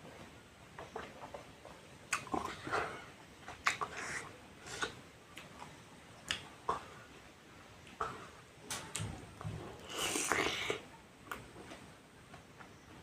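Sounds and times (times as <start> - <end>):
mouth clicks and smacks: 2.1 - 2.8, 3.4 - 6.9.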